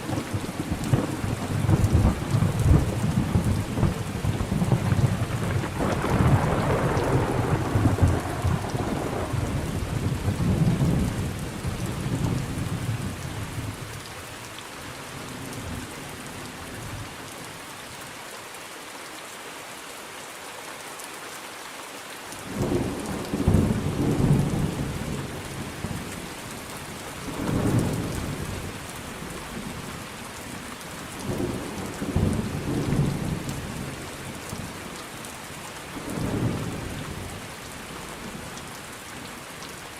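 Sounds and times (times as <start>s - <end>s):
rain: 0.0s - 39.9s
thunder rumbling: 0.1s - 13.2s.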